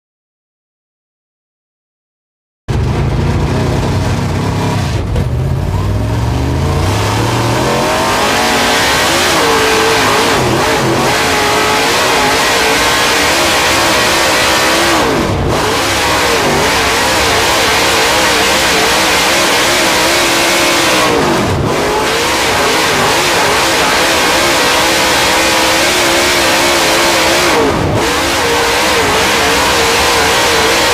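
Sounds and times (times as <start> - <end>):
race car engine at full throttle: 2.7 - 30.9.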